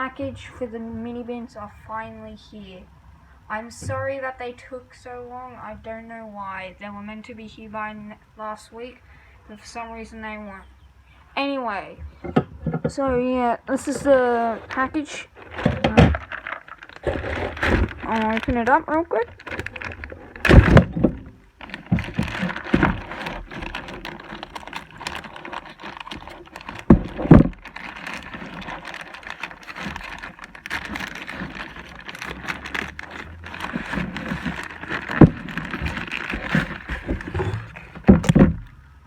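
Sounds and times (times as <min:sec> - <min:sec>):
packaging rustling and scraping: 0:13.7 - 0:38.7
plastic objects knocking down: 0:13.9 - 0:38.7.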